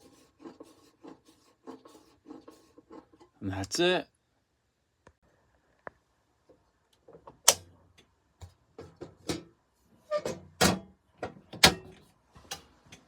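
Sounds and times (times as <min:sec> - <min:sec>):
knocks and clatters of metal covers: 0:08.4 - 0:13.0.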